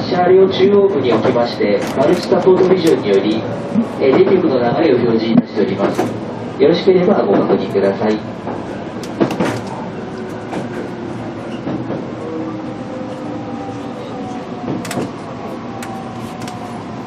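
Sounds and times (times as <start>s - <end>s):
train running noise: 0.0s - 17.0s
sharp clicks and knocks: 9.0s - 9.8s.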